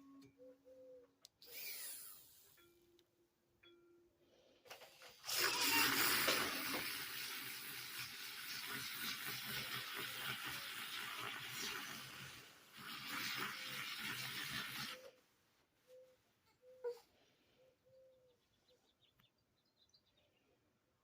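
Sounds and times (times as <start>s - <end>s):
milk frother whisking milk: 5.1s - 15.2s.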